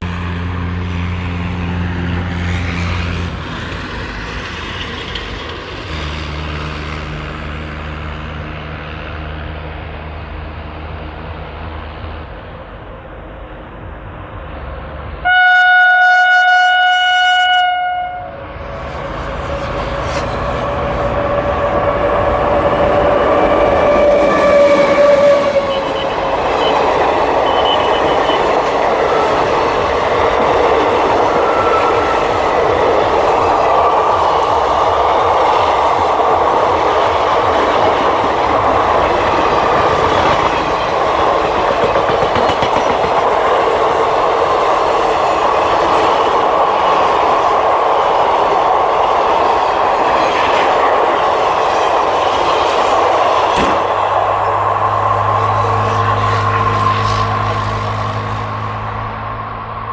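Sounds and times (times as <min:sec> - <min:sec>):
train rumbling past: 0:00.0 - 0:59.9
locomotive horn blast: 0:15.2 - 0:19.4, 0:23.0 - 0:29.4, 0:53.6 - 0:59.2
wheels clacking over rail joints: 0:19.0 - 0:57.6.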